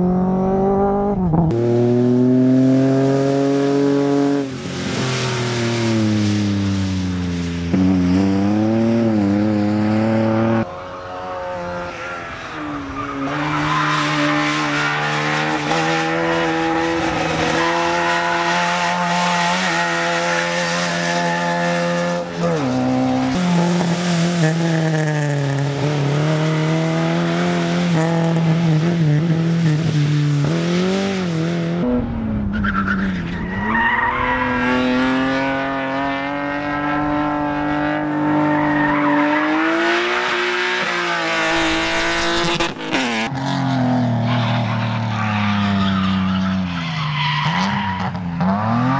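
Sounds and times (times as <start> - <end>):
car engines revving: 0.0 - 48.9
tyres squealing: 44.2 - 48.1.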